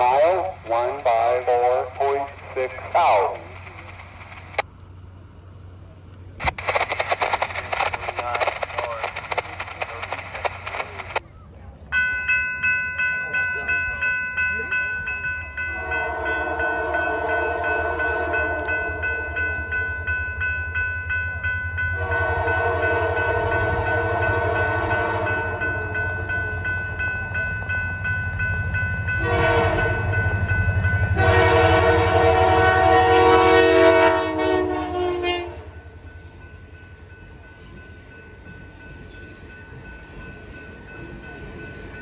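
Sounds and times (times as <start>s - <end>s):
locomotive rumble: 0.0s - 42.0s
locomotive air horn blasts: 15.8s - 19.0s, 22.0s - 25.6s, 29.2s - 30.2s, 31.1s - 35.8s.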